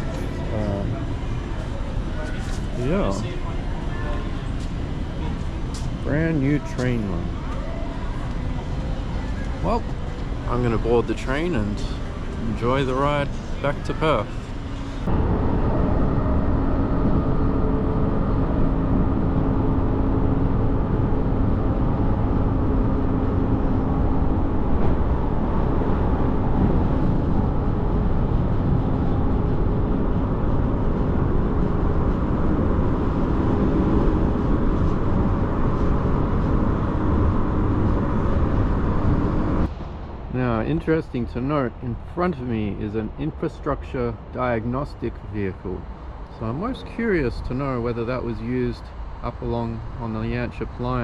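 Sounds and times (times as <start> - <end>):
train rumbling on track: 8.1 - 40.4.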